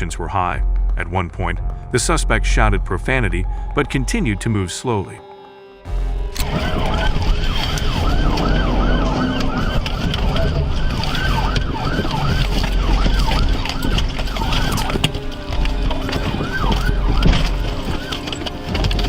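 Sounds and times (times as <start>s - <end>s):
low rumble: 0.0s - 4.6s, 5.8s - 19.0s
police sirens yelping: 6.2s - 19.0s.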